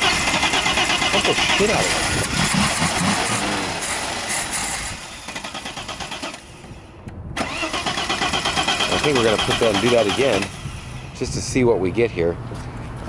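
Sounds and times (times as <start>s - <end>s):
car engine running roughly: 0.0s - 6.3s, 7.5s - 11.1s.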